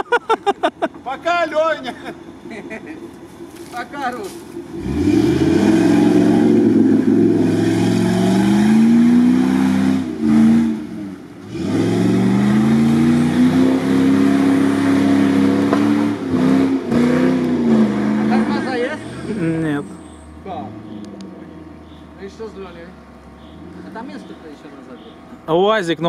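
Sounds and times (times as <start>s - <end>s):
engine revving hard: 4.7s - 21.6s.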